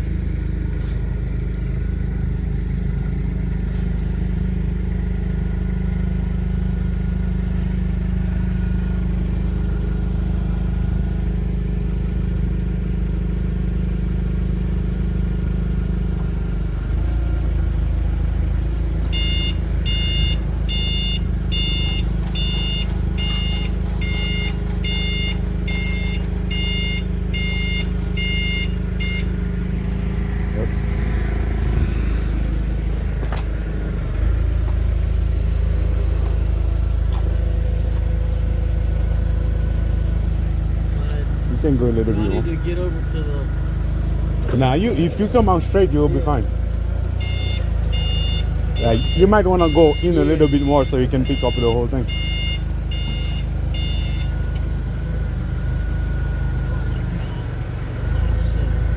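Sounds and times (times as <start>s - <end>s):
diesel engine rumbling: 0.0s - 58.9s
reversing alarm beeping: 17.6s - 30.3s, 42.1s - 42.6s, 47.2s - 58.2s.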